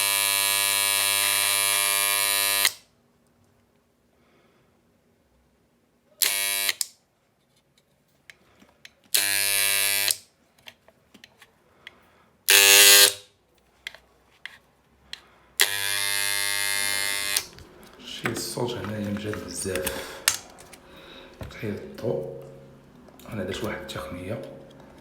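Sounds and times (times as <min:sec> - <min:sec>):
hair clipper buzzing: 0:00.0 - 0:02.8, 0:06.2 - 0:06.9, 0:09.1 - 0:10.3, 0:12.5 - 0:13.2, 0:15.6 - 0:17.7.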